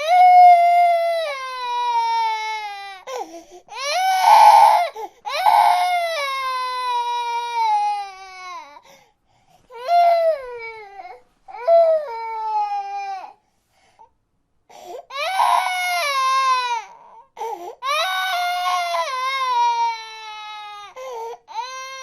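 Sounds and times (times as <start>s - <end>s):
infant crying: 0.0s - 8.9s, 9.7s - 13.4s, 14.7s - 22.0s.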